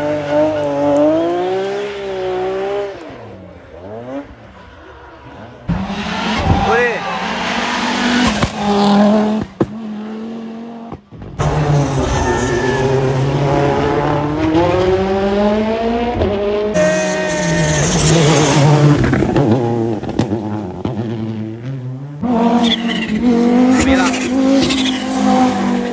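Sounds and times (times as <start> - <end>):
rally car engines at full throttle: 0.0 - 25.9.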